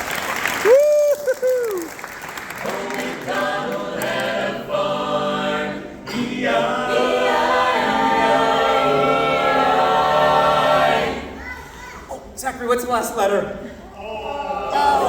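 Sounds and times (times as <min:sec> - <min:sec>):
vocal group singing in harmony: 0:02.5 - 0:11.4.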